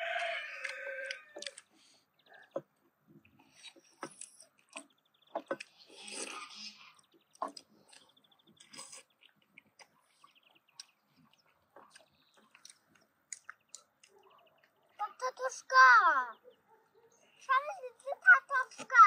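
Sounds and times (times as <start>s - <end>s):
soft chewing: 0.0s - 15.0s.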